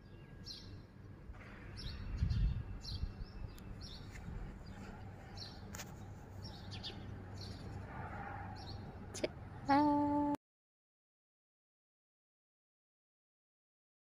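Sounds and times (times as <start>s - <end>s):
small birds chirping: 0.0s - 10.4s
steady low hum: 0.0s - 10.4s.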